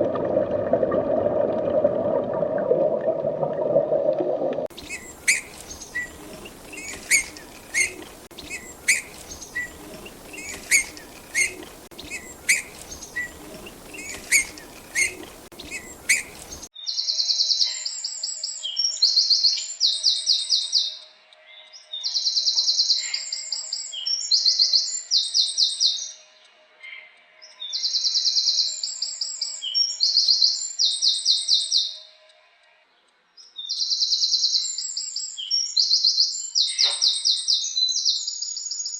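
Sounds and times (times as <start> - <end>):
bird chirping: 4.7 - 17.6
songbird trilling: 4.8 - 16.7.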